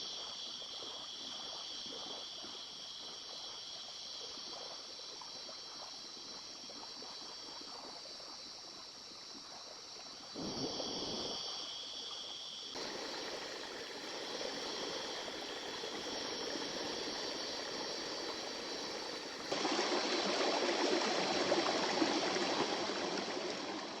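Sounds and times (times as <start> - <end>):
river water running over stones: 12.8 - 24.0.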